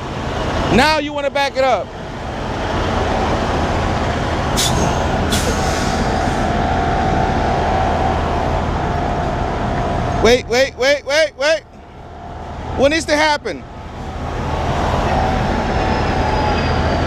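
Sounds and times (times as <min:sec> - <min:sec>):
diesel truck engine running: 0:00.0 - 0:17.0
steady whine: 0:00.0 - 0:17.0
air brake hisses: 0:04.6 - 0:06.5.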